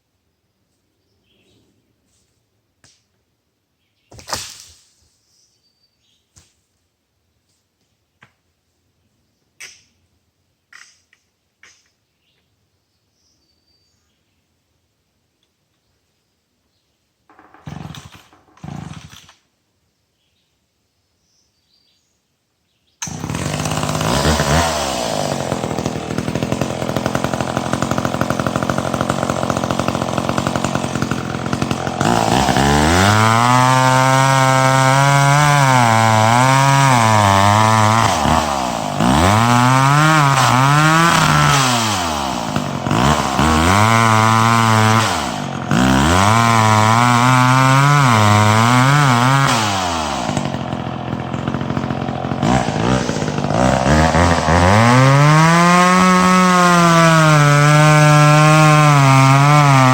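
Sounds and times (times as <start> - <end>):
chainsaw cutting wood: 17.3 - 19.5, 23.0 - 59.9.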